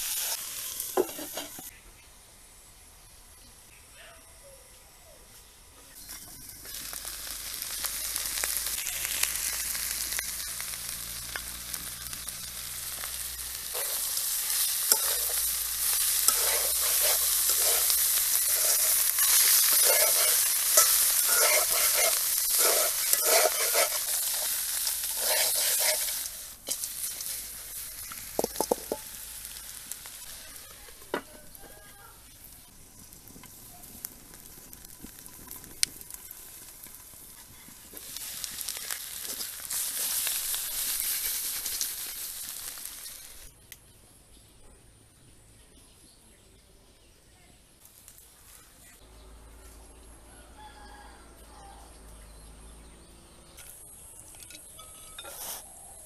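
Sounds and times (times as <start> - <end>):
spatula scraping a wok: 0.0 - 1.7, 8.4 - 30.4, 53.6 - 55.9
vegetables sizzling in oil: 0.0 - 3.8, 5.4 - 43.6.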